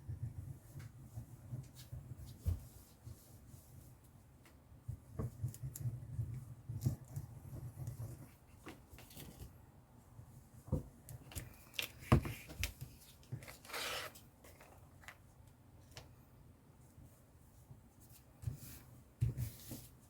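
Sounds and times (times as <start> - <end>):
paper rustling: 11.6 - 15.2.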